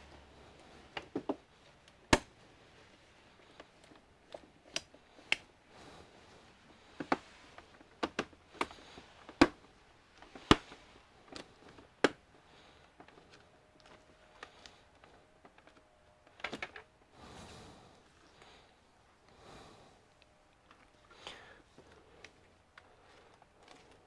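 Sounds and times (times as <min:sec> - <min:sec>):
clicks of computer parts handled: 0:15.5 - 0:16.9.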